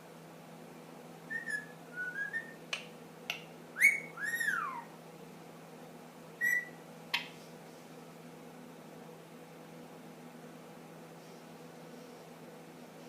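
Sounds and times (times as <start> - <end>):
parakeet whistling: 1.3 - 2.6, 3.8 - 4.9, 6.4 - 7.3.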